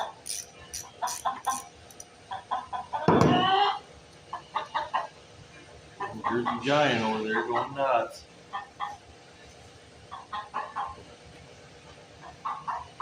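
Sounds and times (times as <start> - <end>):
chickens clucking: 2.2 - 5.2, 6.0 - 7.9, 8.5 - 9.0, 10.1 - 11.1, 12.2 - 13.0.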